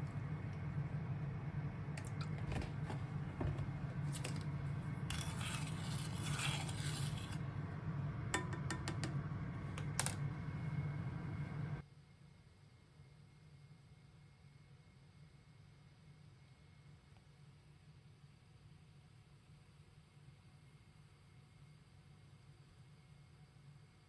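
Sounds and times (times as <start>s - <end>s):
steady low hum: 0.0s - 11.8s
noisy brushing: 5.1s - 7.4s.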